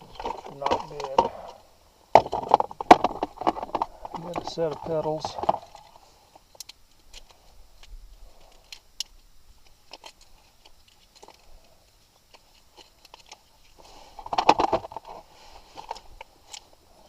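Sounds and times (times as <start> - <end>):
hardware clattering: 0.0 - 1.6, 2.2 - 6.0.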